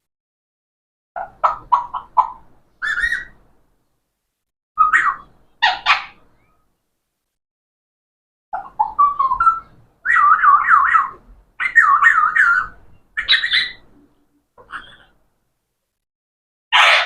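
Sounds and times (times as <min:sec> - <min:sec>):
parrot whistling and warbling: 0:01.2 - 0:03.4, 0:04.8 - 0:06.5, 0:08.6 - 0:13.8.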